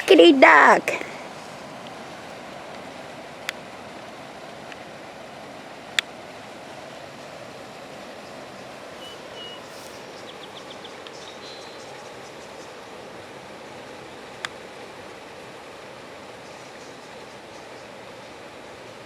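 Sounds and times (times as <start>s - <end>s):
flowing river water: 0.0s - 19.0s
faint bird chirps: 8.2s - 12.8s.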